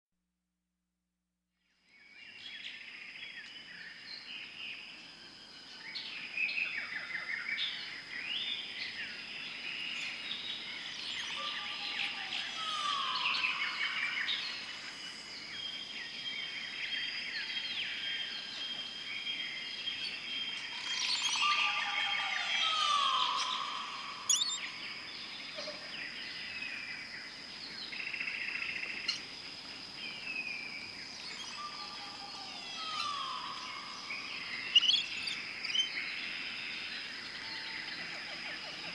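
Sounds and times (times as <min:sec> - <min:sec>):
wild birds chirping and whistling: 0:05.6 - 0:29.3, 0:30.0 - 0:38.9
slow falling bird whistles: 0:22.5 - 0:24.7.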